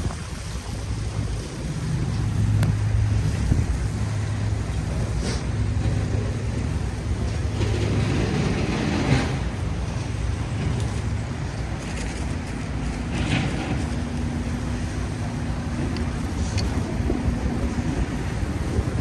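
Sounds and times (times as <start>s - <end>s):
vehicle engine running: 0.0s - 19.0s
vehicles passing: 0.0s - 19.0s.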